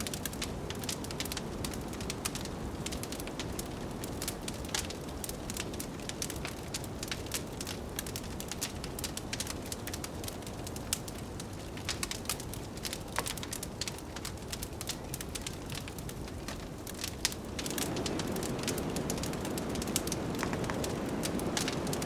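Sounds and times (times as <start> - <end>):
wood fire crackling: 0.0 - 22.0
blizzard wind rushing: 16.2 - 22.0.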